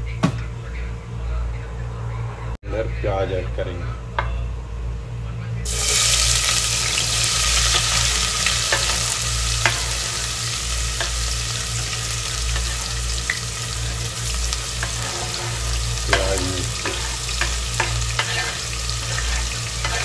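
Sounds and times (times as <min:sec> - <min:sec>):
onions sizzling in oil: 0:05.7 - 0:20.0.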